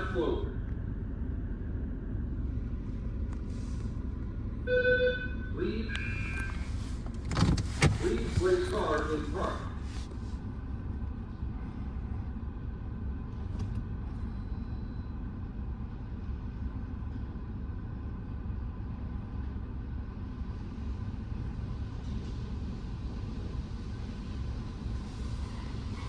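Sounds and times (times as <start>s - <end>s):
car engine idling: 5.6s - 14.6s.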